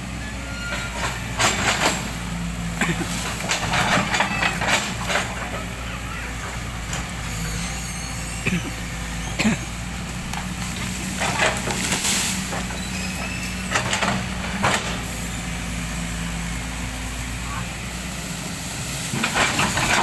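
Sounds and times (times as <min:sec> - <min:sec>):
heavy machine engine running: 0:00.0 - 0:20.0
wood cracking and splintering: 0:10.2 - 0:14.9.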